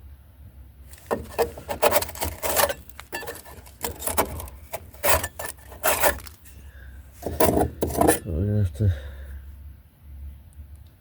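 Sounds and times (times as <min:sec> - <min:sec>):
irregular scrapes and knocks: 0:00.9 - 0:06.6, 0:07.2 - 0:08.3.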